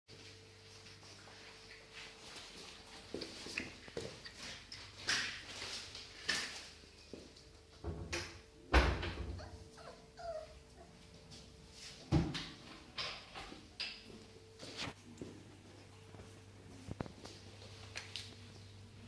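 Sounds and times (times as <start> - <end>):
puppy whimpers: 9.3 - 11.0.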